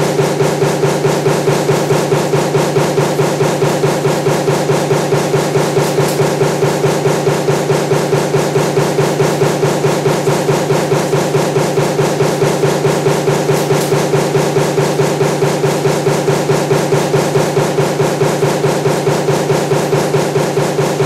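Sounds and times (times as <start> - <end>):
mechanical hum: 0.0 - 21.0
punch press stroking: 1.2 - 16.5.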